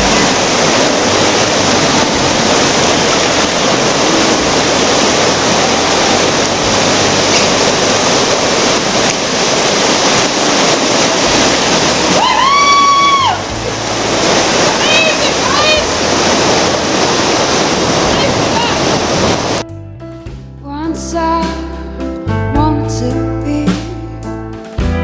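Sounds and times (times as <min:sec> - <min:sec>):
whitewater rapids roaring: 0:00.0 - 0:19.6.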